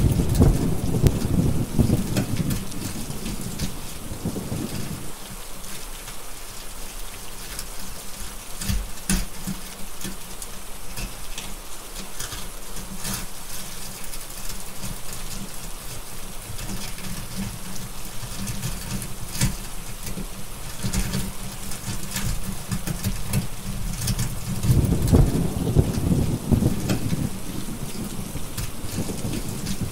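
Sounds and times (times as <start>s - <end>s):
thunder rumbling: 0.0s - 5.2s, 23.3s - 29.9s
steady rain: 0.0s - 29.9s
wood fire crackling: 0.0s - 29.9s.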